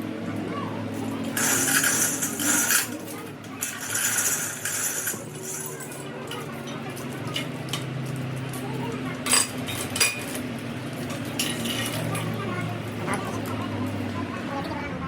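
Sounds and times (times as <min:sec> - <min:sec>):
metal tools clinking: 0:01.3 - 0:07.9, 0:09.2 - 0:10.4, 0:11.1 - 0:12.3.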